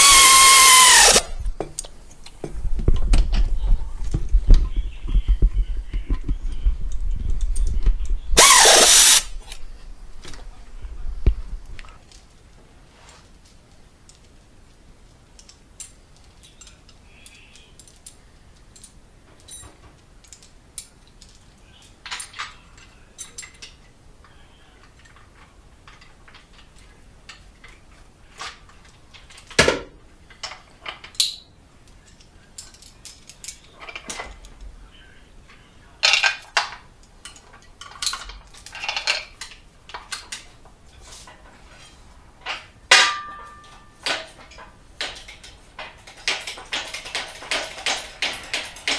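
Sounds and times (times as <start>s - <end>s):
metal tools clinking and clanking: 36.0s - 40.4s, 41.2s - 48.9s
clatter: 43.1s - 48.9s.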